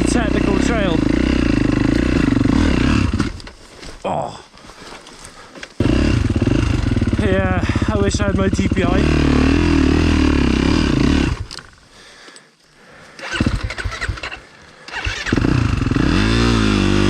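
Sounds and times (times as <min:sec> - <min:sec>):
motocross bike engine revving: 0:00.0 - 0:03.5, 0:05.8 - 0:11.6, 0:13.2 - 0:17.0.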